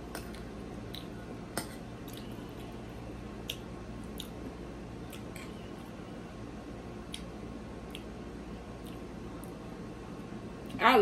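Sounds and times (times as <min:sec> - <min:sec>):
steady low hum: 0:00.0 - 0:11.0
person chewing wet mouth sounds: 0:00.1 - 0:02.8, 0:03.4 - 0:05.9, 0:07.0 - 0:08.2, 0:08.8 - 0:09.6.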